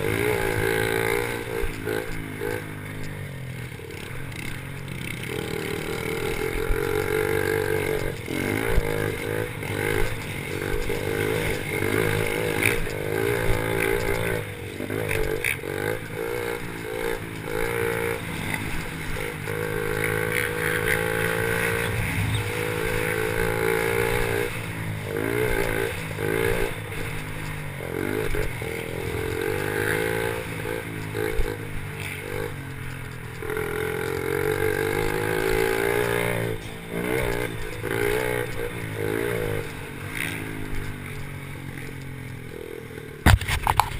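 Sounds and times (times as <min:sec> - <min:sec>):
pit bike engines revving: 0:00.0 - 0:43.9
knocks and clatter: 0:43.2 - 0:43.9.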